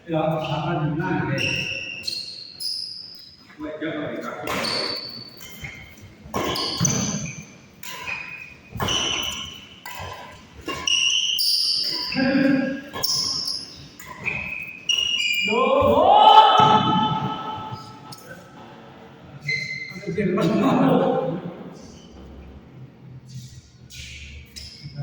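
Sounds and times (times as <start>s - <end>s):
sneakers squeaking on floor: 0.3s - 18.4s, 19.4s - 20.6s, 21.8s - 22.5s, 23.3s - 25.0s
rackets striking shuttlecock: 4.4s - 15.4s
voices: 11.8s - 13.2s, 15.2s - 22.2s.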